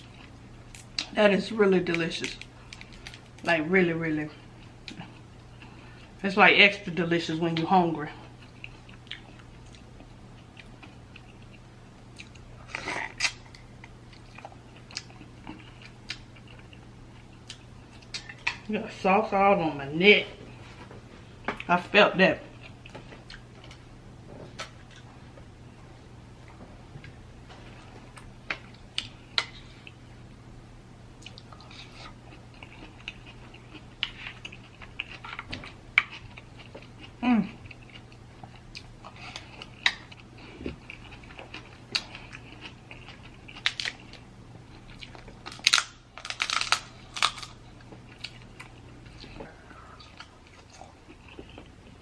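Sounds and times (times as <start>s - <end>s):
person chewing: 7.6s - 18.7s, 22.5s - 23.8s, 31.2s - 52.0s
crab shell cracking: 45.5s - 47.6s.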